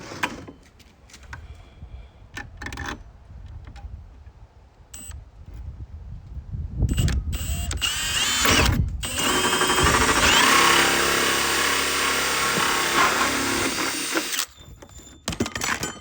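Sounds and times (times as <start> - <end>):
power drill cutting plastic: 7.1 - 14.6.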